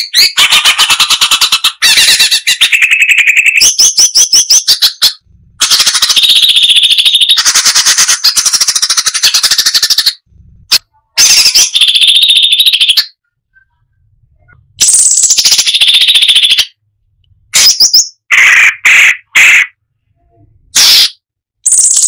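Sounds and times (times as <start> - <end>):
bird singing fast notes: 0.0 - 10.4, 11.2 - 16.8, 20.8 - 22.0.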